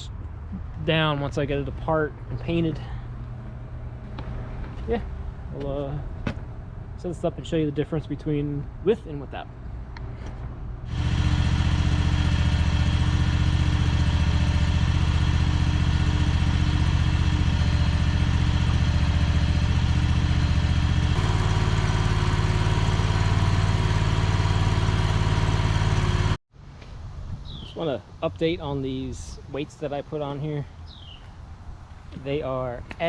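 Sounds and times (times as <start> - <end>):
skid steer engine running: 10.9 - 26.4.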